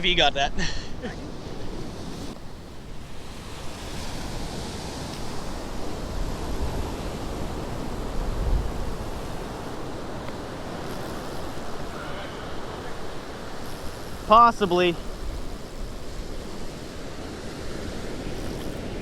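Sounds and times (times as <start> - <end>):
ocean surf washing in: 0.0 - 19.0.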